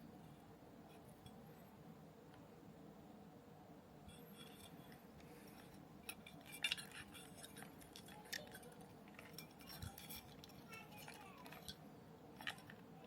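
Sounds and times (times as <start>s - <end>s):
small parts and tools clicking: 4.1s - 13.0s.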